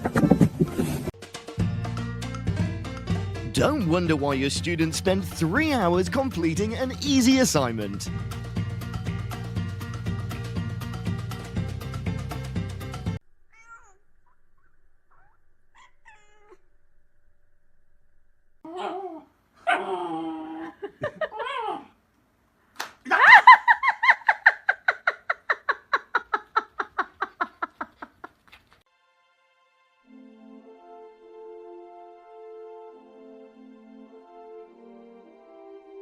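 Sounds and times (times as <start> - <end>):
background music: 1.1 - 13.2, 28.9 - 36.0
cat meowing: 13.5 - 14.0, 15.1 - 16.6
cat rapid repeated calls: 13.5 - 16.6
cat chirping: 13.5 - 16.7.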